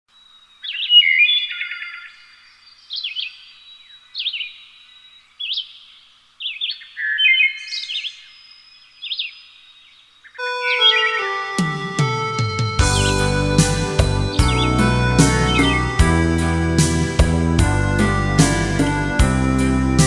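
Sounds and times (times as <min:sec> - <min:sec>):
birds chirping: 0:00.6 - 0:20.0
music: 0:10.4 - 0:20.0.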